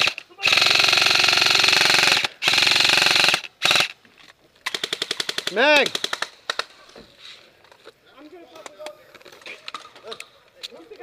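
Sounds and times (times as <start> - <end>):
airsoft rifle firing bursts: 0.0 - 4.0, 4.6 - 6.6.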